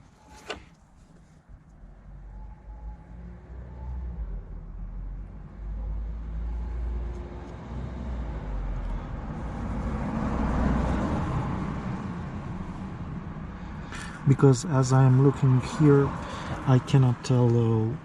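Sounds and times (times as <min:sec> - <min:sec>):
vehicle passing by: 0:03.1 - 0:17.0.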